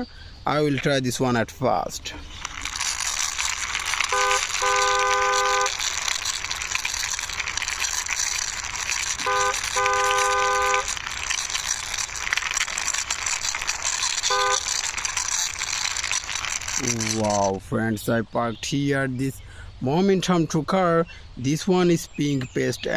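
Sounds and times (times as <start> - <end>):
toy truck wheels rattling: 1.9 - 17.7
car horn honking: 4.1 - 5.7, 9.2 - 10.9.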